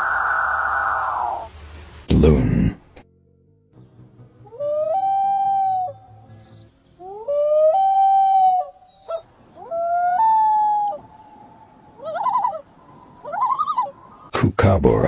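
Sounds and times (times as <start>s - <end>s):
loon calling: 4.5s - 6.4s, 7.0s - 14.3s.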